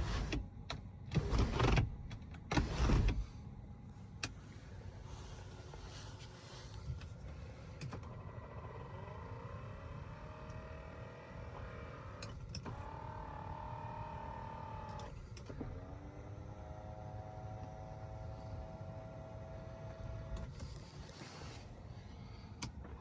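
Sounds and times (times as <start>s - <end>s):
low steady rumble: 0.0s - 23.0s
electric motors whining: 8.0s - 20.5s.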